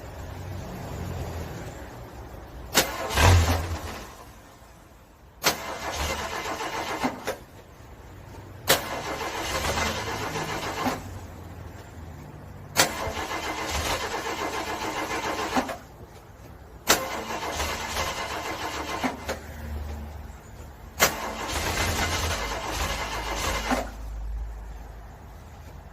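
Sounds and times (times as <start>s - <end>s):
car engine cranking: 2.5s - 11.9s, 12.5s - 19.9s, 20.5s - 24.2s.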